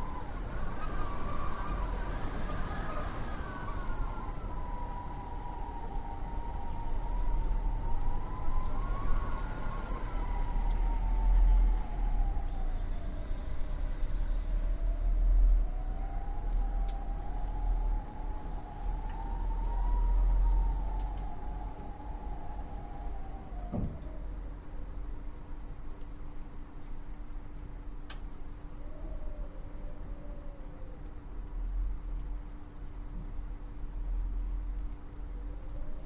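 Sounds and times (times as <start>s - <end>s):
wind whistling: 0.0s - 25.5s
deep gusting wind rumble: 0.0s - 25.6s.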